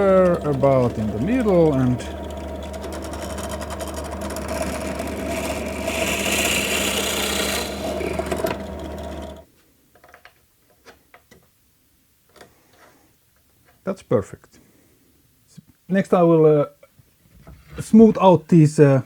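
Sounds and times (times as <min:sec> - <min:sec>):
electric drill boring wood: 0:00.0 - 0:09.4.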